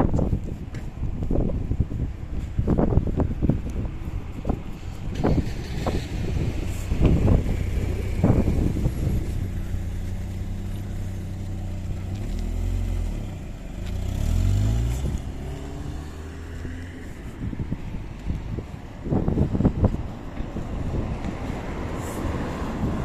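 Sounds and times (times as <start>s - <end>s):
vehicle engine droning: 0.1s - 23.0s.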